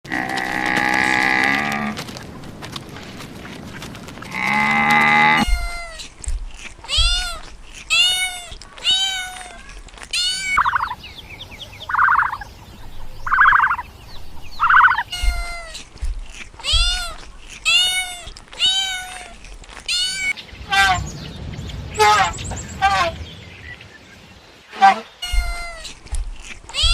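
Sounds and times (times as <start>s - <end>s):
high-pitched animal calls: 4.3s - 6.1s, 6.8s - 11.1s, 11.7s - 15.8s, 16.6s - 21.2s.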